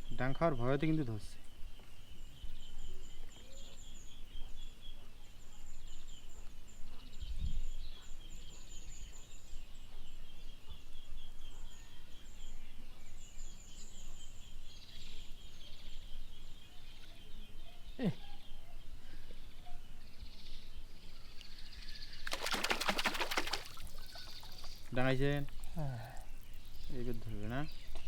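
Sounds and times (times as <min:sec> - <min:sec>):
rapid high chirping: 0:22.3 - 0:27.7.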